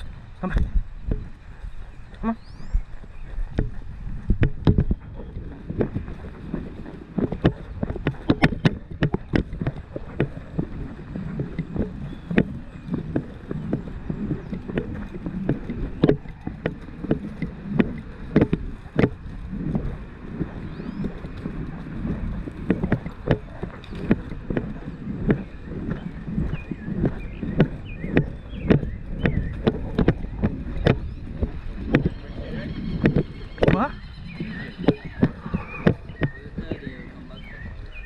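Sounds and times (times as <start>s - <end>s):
horse hoofbeats: 0.0s - 38.0s
low rumble: 0.0s - 38.0s
sharp irregular clicks: 22.1s - 37.0s.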